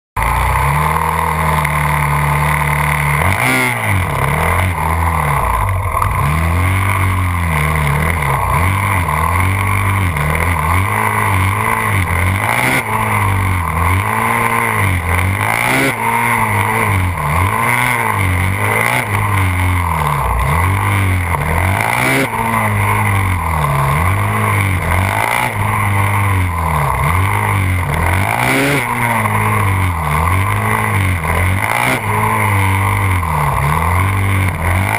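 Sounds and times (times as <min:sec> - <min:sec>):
motorcycle engine revving: 0:00.2 - 0:34.9.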